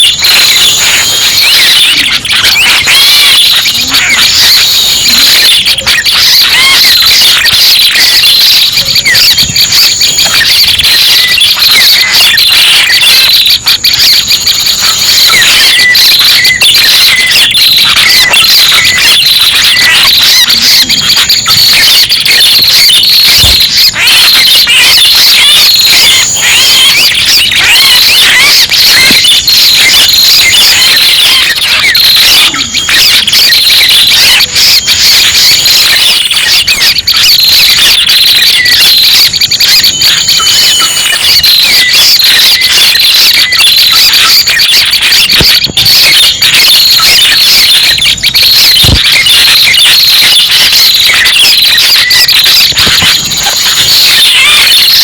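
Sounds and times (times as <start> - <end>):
small birds chirping and trilling: 0.0 - 8.2, 25.4 - 28.4.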